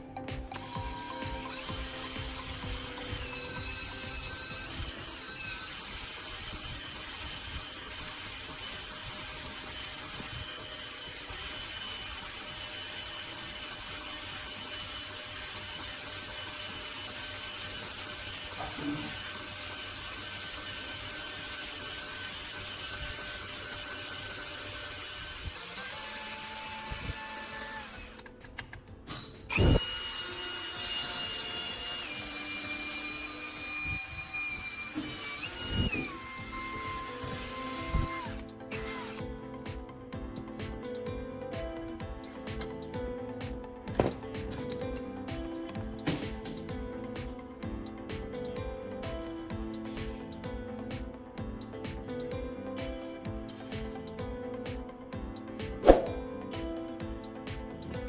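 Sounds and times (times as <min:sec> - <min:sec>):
power drill whining: 0:00.0 - 0:40.5.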